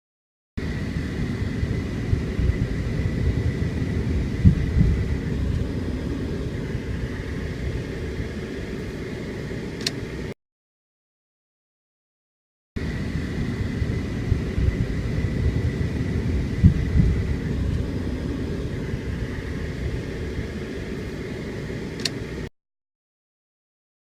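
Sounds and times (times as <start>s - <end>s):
low rumble of thunder: 0.6s - 8.8s, 12.8s - 21.0s
sharp click: 9.8s - 10.0s, 22.0s - 22.2s.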